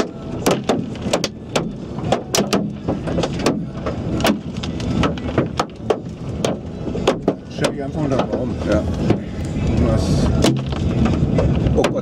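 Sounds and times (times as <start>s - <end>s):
hailstones knocking on car: 0.0s - 9.3s
car rumble: 0.0s - 12.0s.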